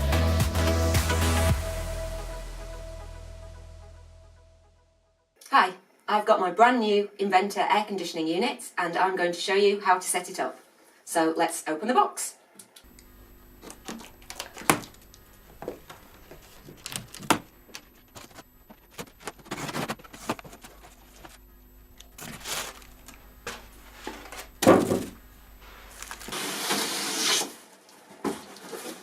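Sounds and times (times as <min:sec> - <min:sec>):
cardboard and paper rustling: 0:13.6 - 0:21.4, 0:22.1 - 0:26.8.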